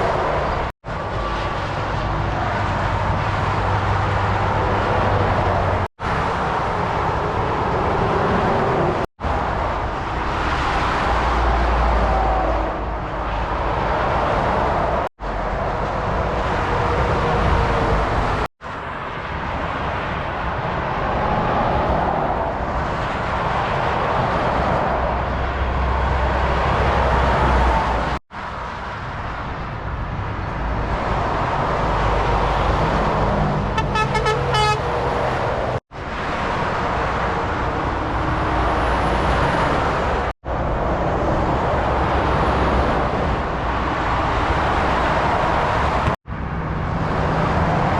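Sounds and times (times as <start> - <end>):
motorway traffic passing: 0.0 - 47.9
pulsing vehicle horn: 33.7 - 35.1.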